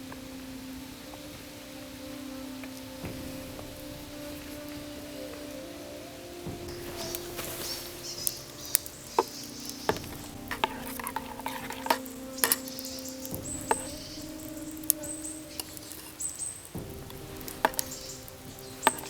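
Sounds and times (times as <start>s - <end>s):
faint sizzle: 0.0s - 19.0s
sustained music tones: 0.0s - 19.0s
utensil clinking against cookware: 9.9s - 15.0s.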